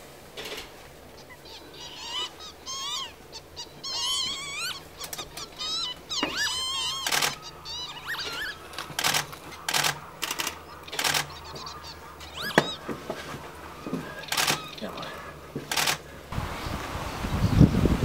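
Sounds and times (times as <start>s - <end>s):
short harsh bird calls: 1.1s - 16.3s
whistled bird notes: 1.2s - 15.4s
rapid warbling bird trill: 1.2s - 16.1s.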